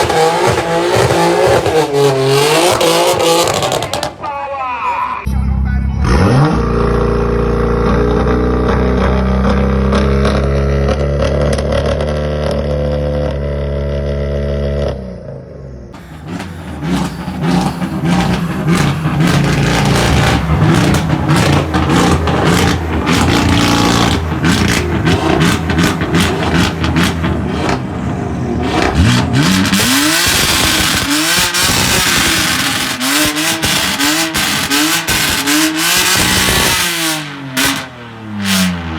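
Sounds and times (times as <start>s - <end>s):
engine rev blips: 0.0s - 4.2s, 15.9s - 38.9s
car exhaust drone: 0.0s - 4.3s, 6.0s - 38.9s
exhaust crackling and popping: 0.0s - 4.3s, 16.0s - 38.9s.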